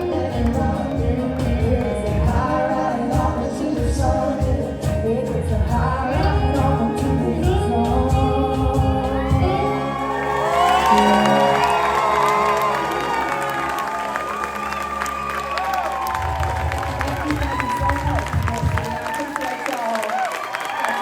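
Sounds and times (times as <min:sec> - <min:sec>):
people singing: 0:00.0 - 0:09.9
country-rock band playing: 0:00.0 - 0:20.0
drums: 0:00.0 - 0:20.8.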